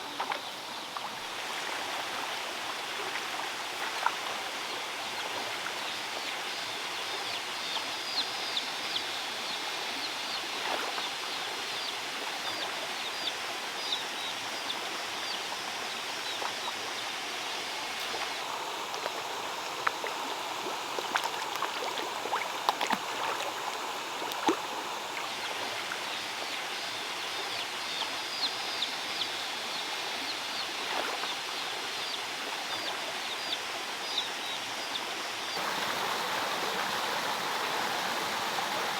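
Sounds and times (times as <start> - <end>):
water running over stone waterfall: 16.2 - 27.2, 35.6 - 38.9
birds chirping: 35.5 - 38.9.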